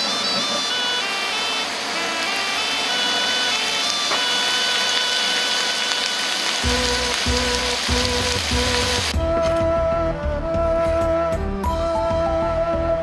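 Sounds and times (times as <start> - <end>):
bamboo shoots sizzling in oil: 2.9 - 9.2
background music of held notes: 6.6 - 13.0
low pulsing beat: 6.6 - 13.0.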